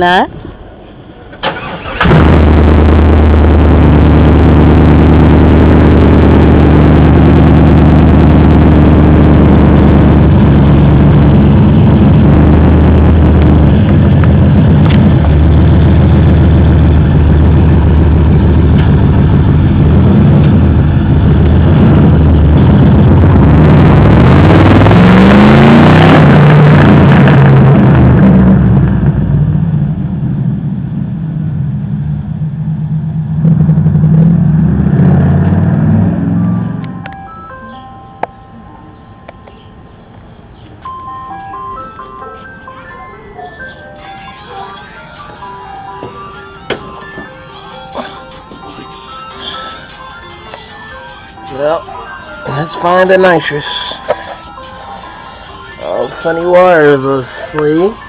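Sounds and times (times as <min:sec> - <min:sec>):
engine revving at lumpy idle: 0:02.0 - 0:37.1.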